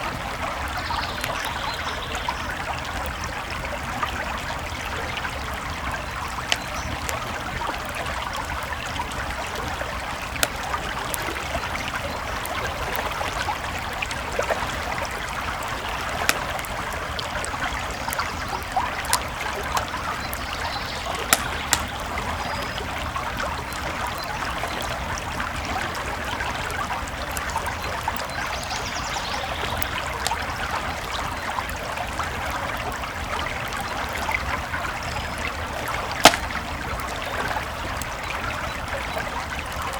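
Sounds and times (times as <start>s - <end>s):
creek flowing: 0.0s - 39.9s
campfire crackling and popping: 0.1s - 39.9s.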